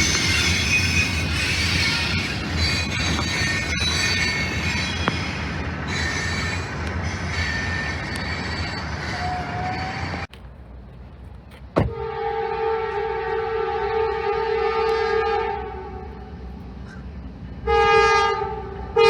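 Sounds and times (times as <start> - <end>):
wheel squeal on rails: 0.0 - 10.3
train rumbling past: 0.0 - 19.0
locomotive air horn chord: 11.9 - 16.3, 17.6 - 19.0.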